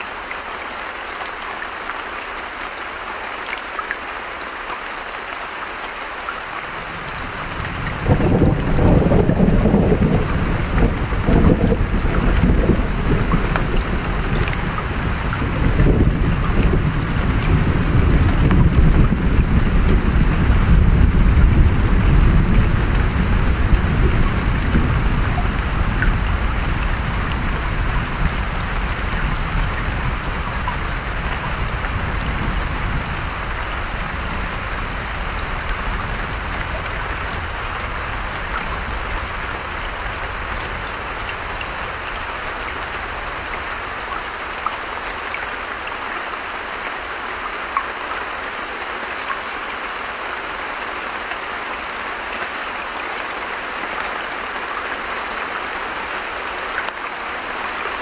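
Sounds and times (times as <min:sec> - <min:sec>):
heavy rain falling: 0:00.0 - 0:58.0
thunder rumbling: 0:07.2 - 0:42.4.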